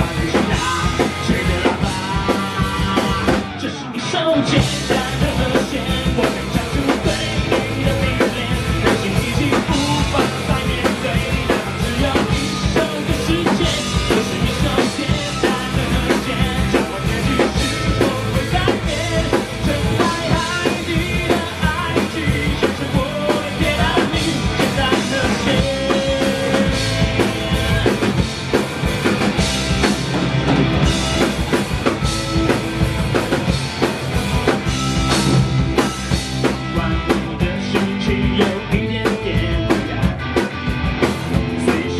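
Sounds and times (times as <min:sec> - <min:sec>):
drum kit beat: 0:00.0 - 0:03.7, 0:04.4 - 0:41.9
rock band playing: 0:00.0 - 0:41.9.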